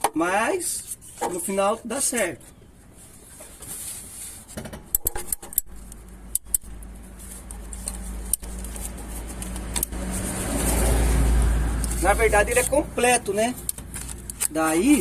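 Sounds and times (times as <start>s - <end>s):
sharp clicks: 4.9s - 7.0s.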